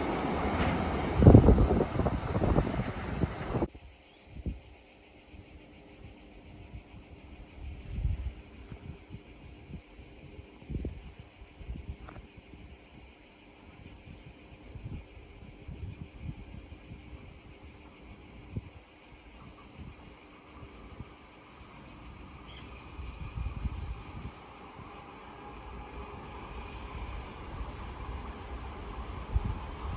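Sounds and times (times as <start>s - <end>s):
faint rumble: 0.0s - 3.7s
wind buffeting microphone: 0.0s - 3.7s, 22.1s - 29.9s
insect chorus: 0.0s - 29.9s.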